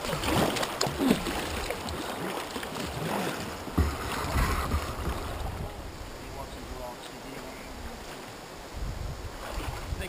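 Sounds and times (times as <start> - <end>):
gurgling drips: 0.0 - 6.0
water splashing around kayak: 0.0 - 10.0
low knocks against hull: 3.7 - 5.6.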